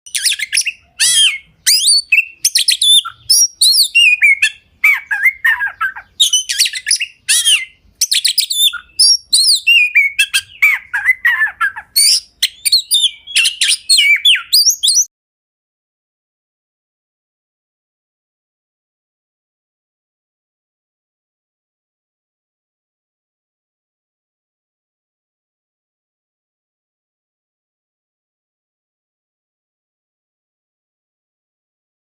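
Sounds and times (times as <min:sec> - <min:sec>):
songbird singing: 0:00.1 - 0:15.1.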